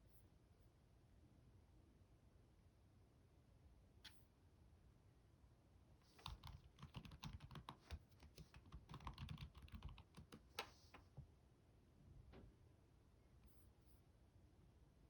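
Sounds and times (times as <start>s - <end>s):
keyboard typing: 6.1s - 11.0s.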